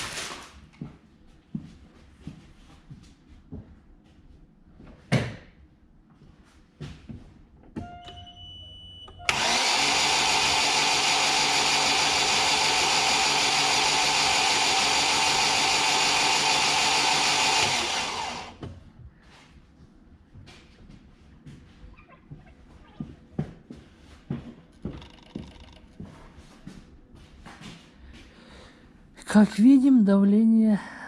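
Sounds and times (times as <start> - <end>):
short beep: 7.8 - 9.3
starter motor cranking engine: 9.2 - 18.6.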